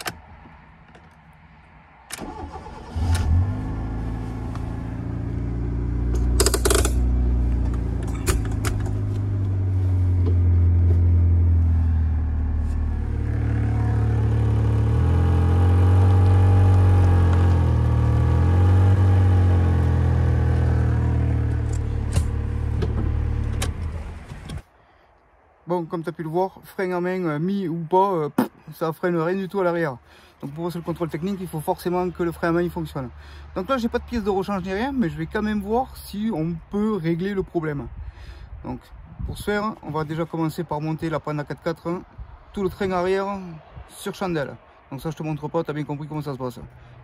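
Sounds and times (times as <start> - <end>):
car engine starting and running: 2.0 - 24.7
sharp rattle: 6.2 - 7.1.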